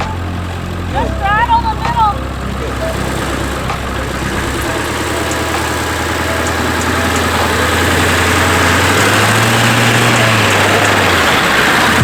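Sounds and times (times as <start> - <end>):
off-road vehicle engine at low revs: 0.0 - 12.0.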